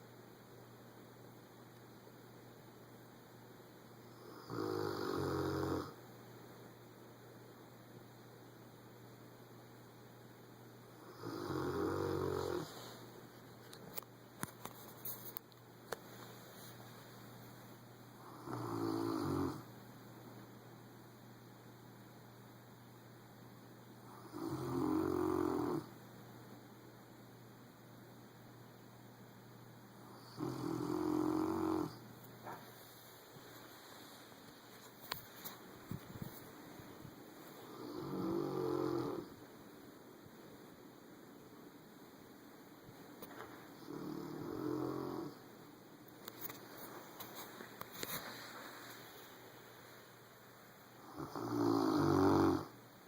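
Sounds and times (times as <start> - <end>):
dog snoring loudly: 4.2 - 6.0, 11.0 - 12.8, 18.2 - 19.7, 24.1 - 25.9, 30.1 - 32.0, 37.7 - 39.4, 43.8 - 45.4, 51.0 - 52.8.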